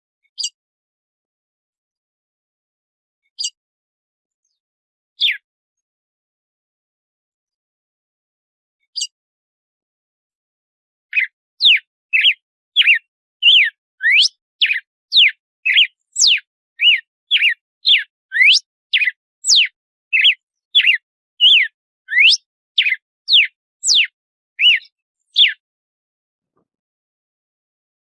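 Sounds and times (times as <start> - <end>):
bird whistling sliding notes: 12.2 - 24.8.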